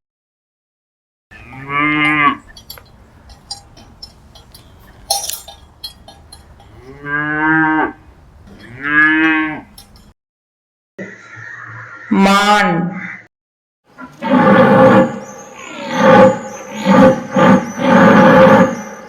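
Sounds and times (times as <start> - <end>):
cow mooing: 1.3 - 4.1, 5.1 - 10.0.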